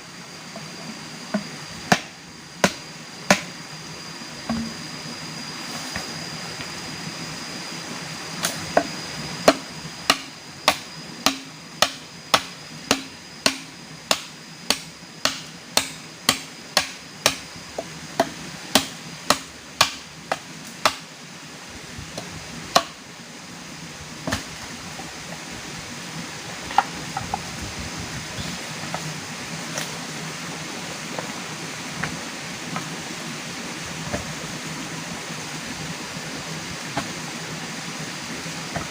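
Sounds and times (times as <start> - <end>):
steady hiss: 0.0 - 38.9
hand tool striking: 9.4 - 17.4.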